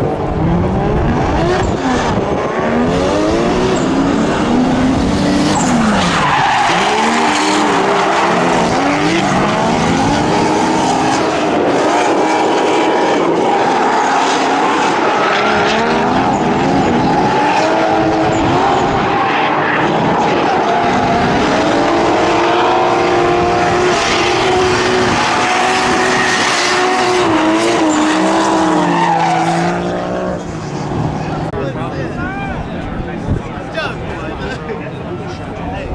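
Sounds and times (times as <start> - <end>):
car engines revving hard: 0.0 - 35.9
tyres screeching: 3.7 - 9.0.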